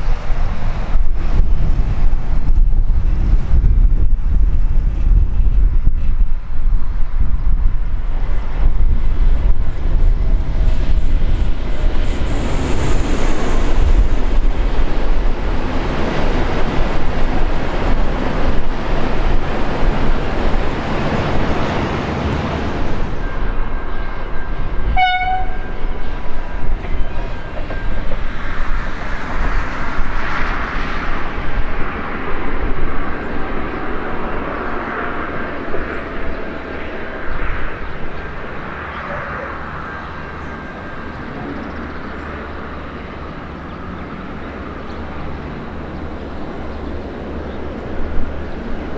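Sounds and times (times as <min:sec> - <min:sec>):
train rumbling past: 0:00.0 - 0:48.9
short train horn toot: 0:24.8 - 0:25.9.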